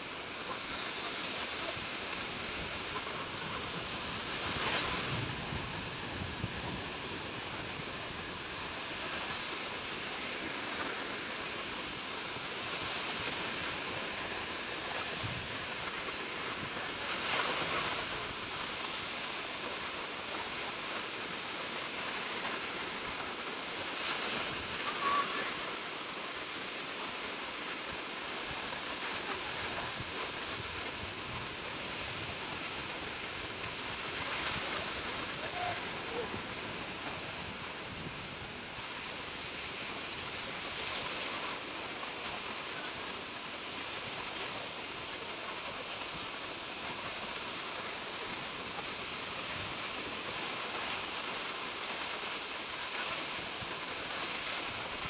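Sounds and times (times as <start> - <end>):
sea waves washing onto shore: 0.0 - 55.0.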